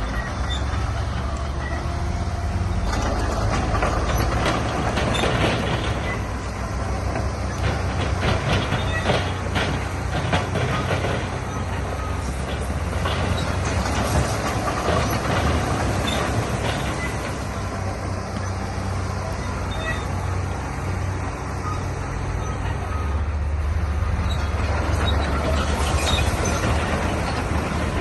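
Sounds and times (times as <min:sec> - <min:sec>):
bulldozer diesel engine rumbling: 0:00.0 - 0:28.0
metal and rock clanking: 0:07.1 - 0:17.6.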